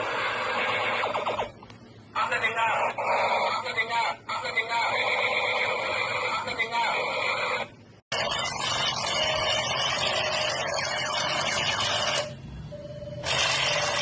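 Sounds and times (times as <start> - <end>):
electronic toy gun burst: 8.2 - 12.4, 13.2 - 14.0.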